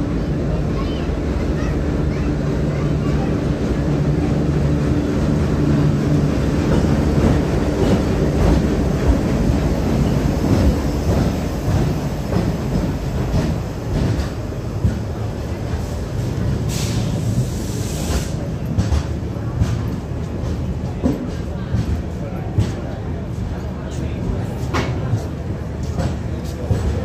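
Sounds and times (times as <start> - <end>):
diesel locomotive engine running: 0.0 - 27.0
train wheels clicking over rail joints: 5.5 - 23.5.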